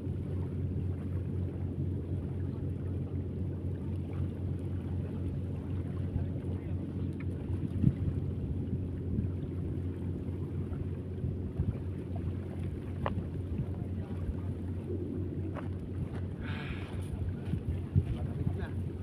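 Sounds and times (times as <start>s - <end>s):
low mechanical drone: 0.0s - 19.0s
wind noise on microphone: 7.5s - 9.6s, 15.3s - 19.0s.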